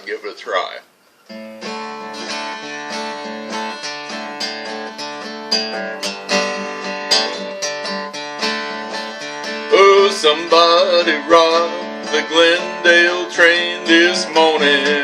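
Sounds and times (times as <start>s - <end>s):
acoustic guitar picking and strumming: 1.2s - 15.0s.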